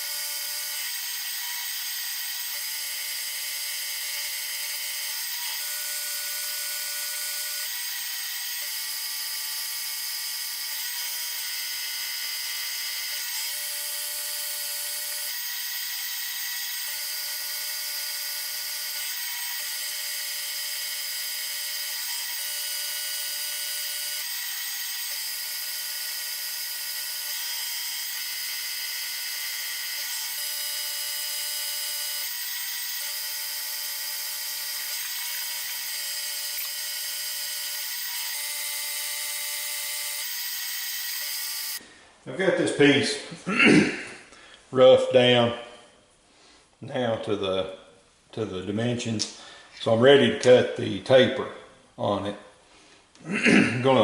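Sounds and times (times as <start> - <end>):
milling machine cutting steel: 0.0 - 41.8.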